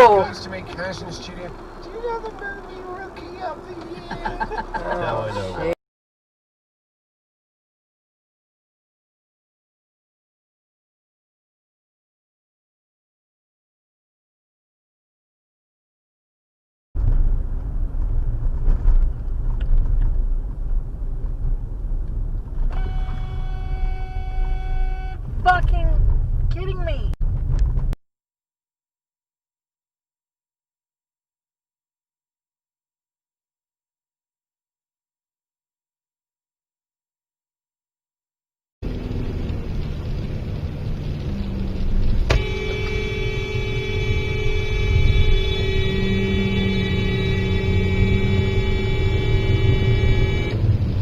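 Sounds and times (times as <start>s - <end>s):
road and engine rumble: 0.0s - 5.8s, 17.0s - 28.0s, 38.8s - 51.0s
car horn blast: 22.7s - 25.2s, 42.3s - 50.7s.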